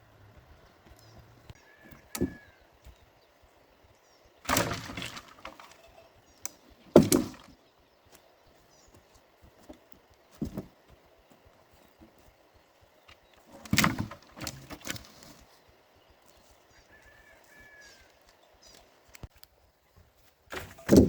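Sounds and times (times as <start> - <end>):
heavy knocks and thuds: 6.9 - 7.6.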